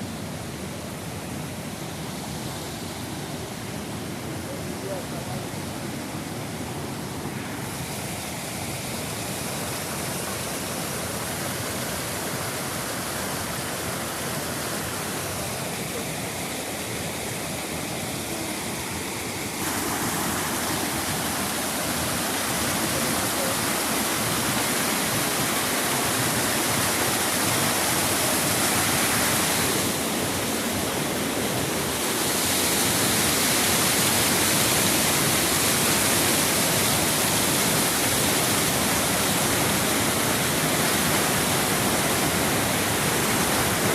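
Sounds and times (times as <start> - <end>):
water rushing over waterfall: 0.0 - 43.9.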